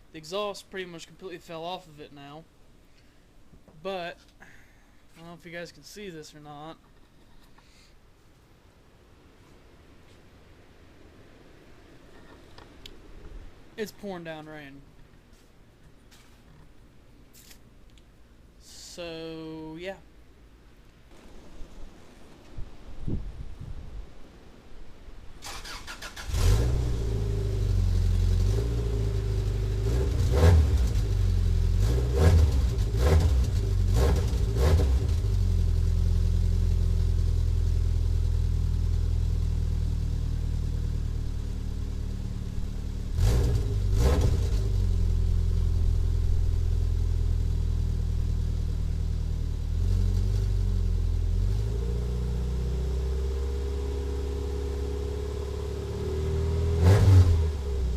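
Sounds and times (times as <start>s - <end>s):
car engine starting and idling: 25.4s - 57.9s
engine revving: 25.5s - 57.9s.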